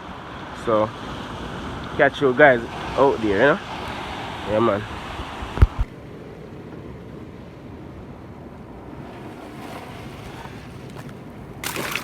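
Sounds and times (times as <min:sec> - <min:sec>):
wind on microphone: 0:02.6 - 0:11.7
waves washing against rocks: 0:08.7 - 0:12.0.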